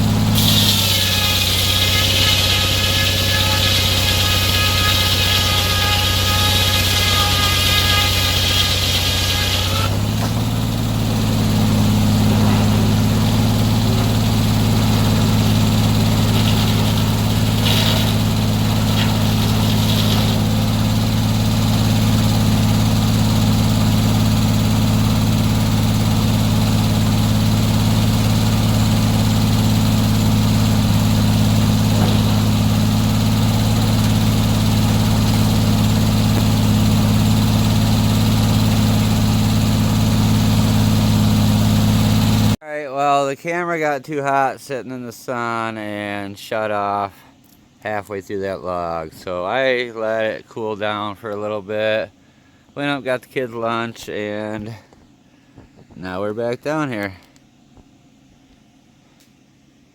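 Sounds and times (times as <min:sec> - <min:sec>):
high saw whine: 0:00.0 - 0:42.6
sawmill engine running: 0:00.0 - 0:42.6.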